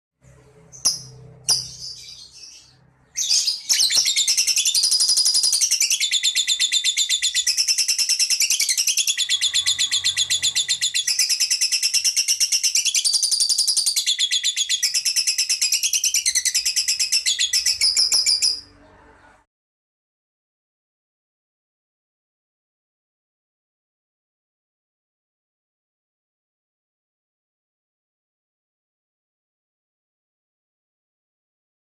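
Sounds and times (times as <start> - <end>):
lovebird chattering: 0.6 - 18.6.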